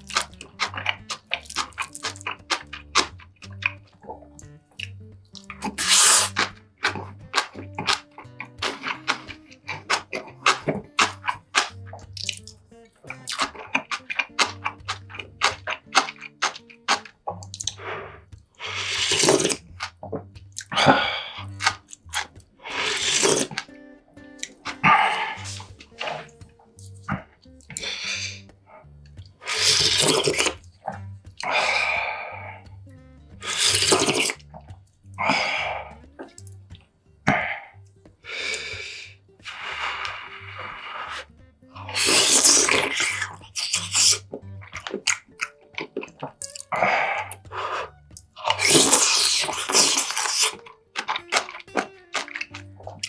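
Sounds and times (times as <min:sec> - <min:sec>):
noisy wet slurping: 0:00.0 - 0:53.0
wet chewing and mouth clicks: 0:00.0 - 0:53.0.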